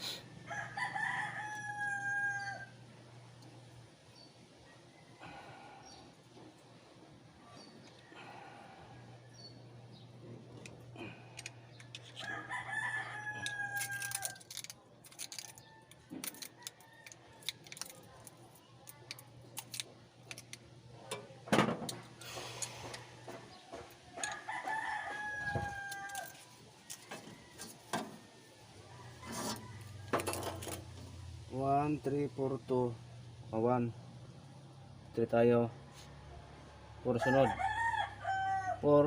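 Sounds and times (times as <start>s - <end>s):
rooster crowing: 0.4s - 2.8s, 12.2s - 14.4s, 24.2s - 31.0s, 37.1s - 39.0s.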